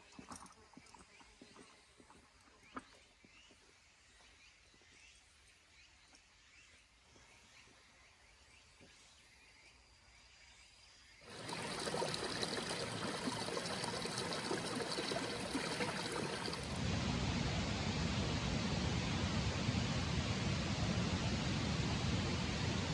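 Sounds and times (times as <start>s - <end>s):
faint outdoor ambience: 0.0s - 22.9s
mountain stream rushing: 11.3s - 16.8s.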